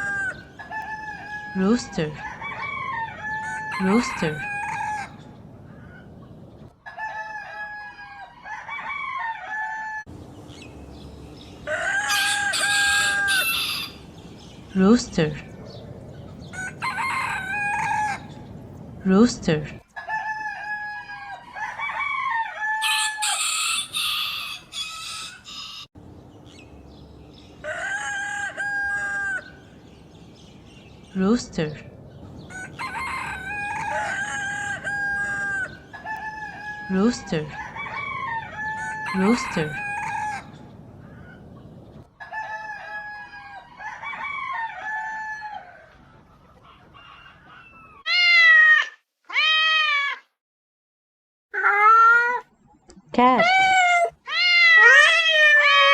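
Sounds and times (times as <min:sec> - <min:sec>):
rooster crowing: 0:00.0 - 0:05.2, 0:06.8 - 0:10.1, 0:11.6 - 0:14.1, 0:16.4 - 0:18.5, 0:20.0 - 0:25.9, 0:27.6 - 0:29.6, 0:32.5 - 0:41.4, 0:42.2 - 0:46.0, 0:46.8 - 0:48.1
harsh squawking calls: 0:11.7 - 0:14.2
cat meowing: 0:48.1 - 0:50.3, 0:53.4 - 0:55.9.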